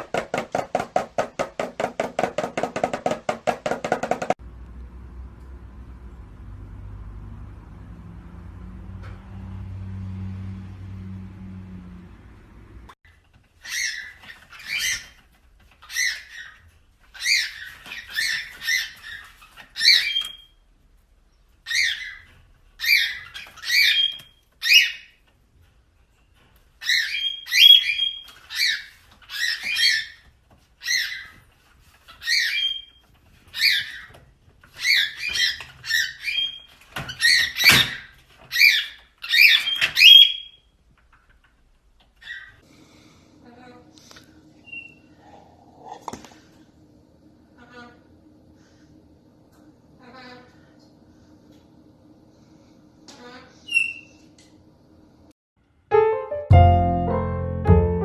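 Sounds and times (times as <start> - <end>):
parrot calling: 13.6 - 20.6, 21.6 - 25.2, 26.8 - 30.2, 32.0 - 40.7
parrot whistle: 26.9 - 30.1, 38.6 - 40.7.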